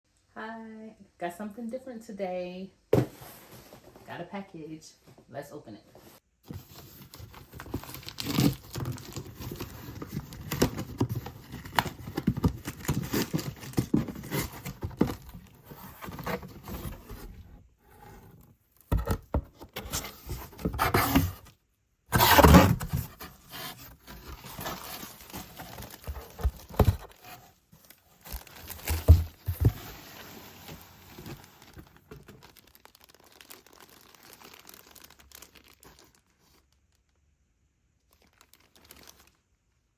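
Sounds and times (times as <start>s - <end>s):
packaging tearing and crinkling: 6.6s - 17.1s, 22.1s - 36.9s, 38.1s - 39.4s.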